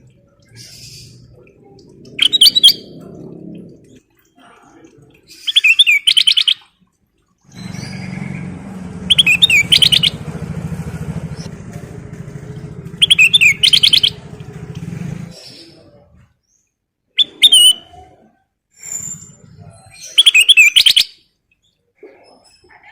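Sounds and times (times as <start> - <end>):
low motor drone: 0.0 - 4.1, 7.5 - 16.0
bird trilling whistled notes: 2.2 - 2.9, 5.5 - 6.6, 9.1 - 10.2, 13.0 - 14.2, 17.2 - 17.9, 20.1 - 21.2.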